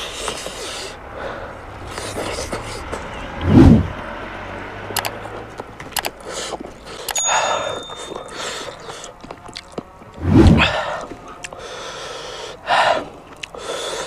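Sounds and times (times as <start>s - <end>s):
crunchy clicks: 5.0s - 6.3s
person chewing food: 8.2s - 10.2s, 10.9s - 11.6s, 13.3s - 14.0s.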